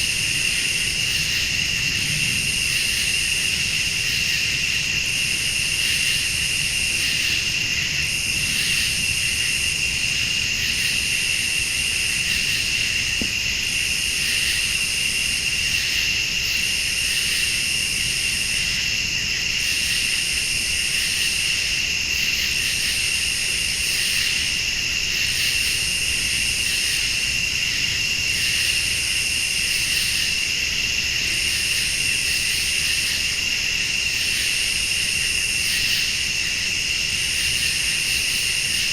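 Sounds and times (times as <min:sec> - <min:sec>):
crickets trilling: 0:00.0 - 0:38.9
high-pitched insect chorus pulsing: 0:00.0 - 0:38.9.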